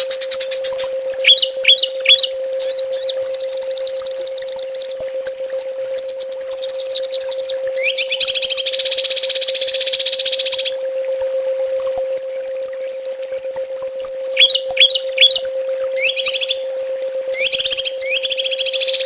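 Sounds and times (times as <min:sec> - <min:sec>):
songbird singing rapid trills: 0:00.0 - 0:10.7, 0:12.2 - 0:15.4, 0:16.0 - 0:16.7, 0:17.3 - 0:19.0
steady low hum: 0:00.0 - 0:19.0
upward-sweeping whistles: 0:01.2 - 0:10.7, 0:12.2 - 0:15.4, 0:16.0 - 0:16.7, 0:17.3 - 0:19.0.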